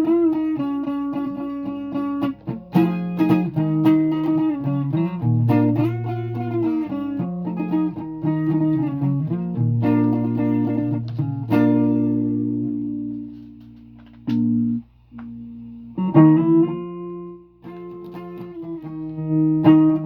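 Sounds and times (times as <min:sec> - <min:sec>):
guitar plucked notes: 0:00.0 - 0:20.0.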